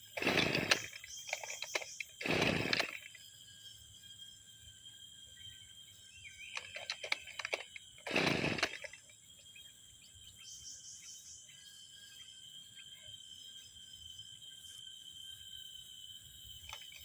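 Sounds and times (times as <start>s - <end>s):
recoil starter rasp: 0.0s - 3.2s, 6.6s - 9.1s.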